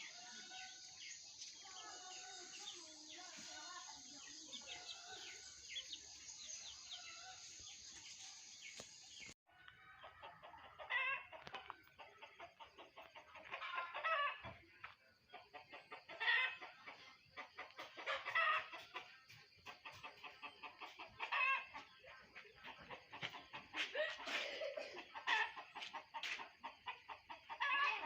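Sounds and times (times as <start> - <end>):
small bird chirps: 0.0 - 9.4
chickens clucking: 0.0 - 28.0
loud rapid chicken calls: 17.4 - 21.8, 22.9 - 28.0.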